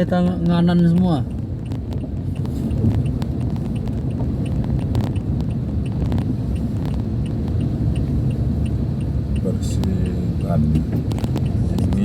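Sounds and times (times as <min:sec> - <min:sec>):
faint steady ticking: 0:00.0 - 0:12.0
vehicle engine and road rumble: 0:00.0 - 0:12.0.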